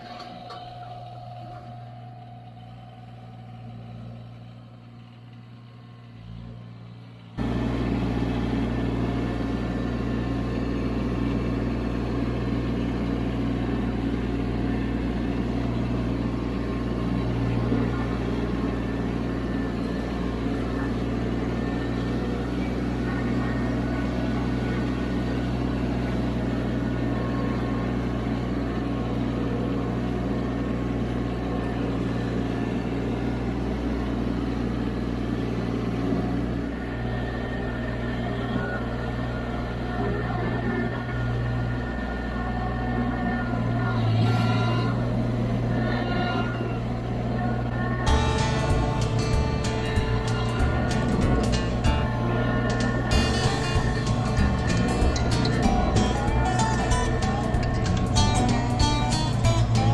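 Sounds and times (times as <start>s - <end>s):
tractor engine humming: 0.0s - 59.9s.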